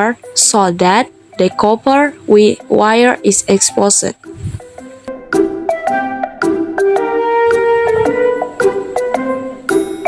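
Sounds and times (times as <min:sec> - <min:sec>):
plucked and mallet melody: 0:04.2 - 0:10.0.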